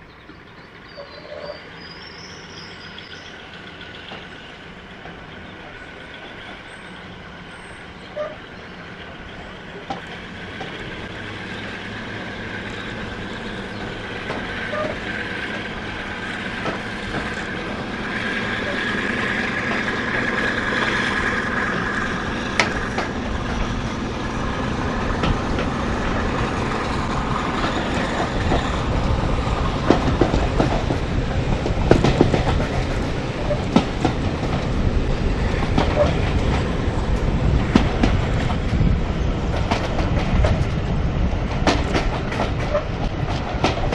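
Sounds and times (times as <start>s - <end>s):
train running: 0.0s - 43.9s
wheels clicking over rail joints: 2.9s - 7.1s, 7.8s - 43.9s.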